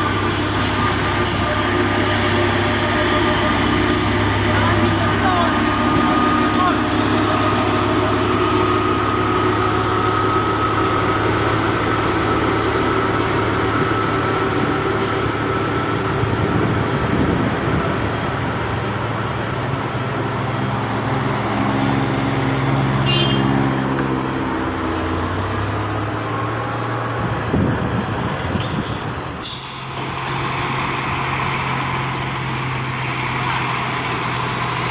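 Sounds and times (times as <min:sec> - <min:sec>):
heavy truck engine running: 0:00.0 - 0:34.9.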